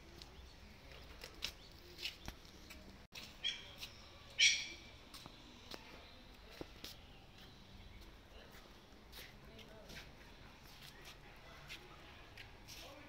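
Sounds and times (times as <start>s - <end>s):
bird calling: 3.3s - 4.9s.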